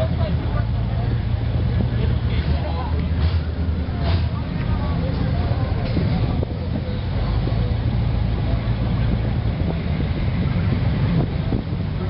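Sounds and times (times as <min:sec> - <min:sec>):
vehicle engine running: 0:00.0 - 0:12.0
wind on microphone: 0:03.7 - 0:12.0.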